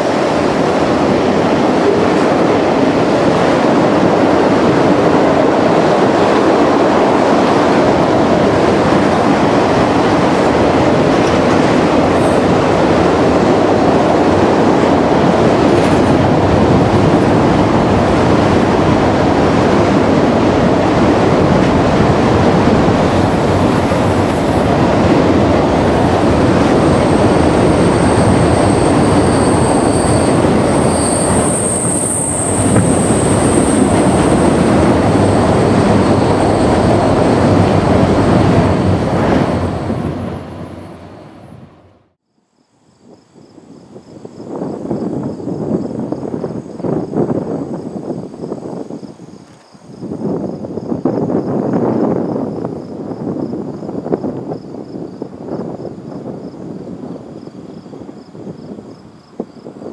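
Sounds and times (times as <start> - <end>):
steel wheels rumbling on rail: 0.0 - 42.1
high-pitched wheel squeal: 27.0 - 42.0.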